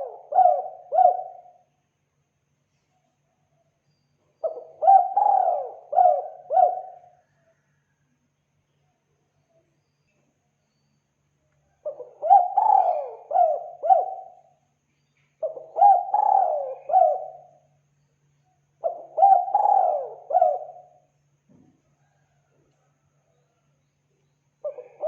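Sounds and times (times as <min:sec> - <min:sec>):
dove cooing: 0:00.0 - 0:01.6, 0:04.4 - 0:07.7, 0:11.8 - 0:14.6, 0:15.4 - 0:17.6, 0:18.8 - 0:21.1, 0:24.6 - 0:25.0.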